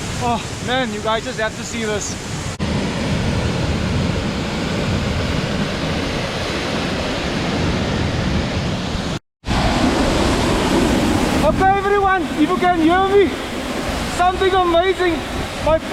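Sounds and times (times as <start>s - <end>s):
waterfall rushing: 5.5s - 15.9s.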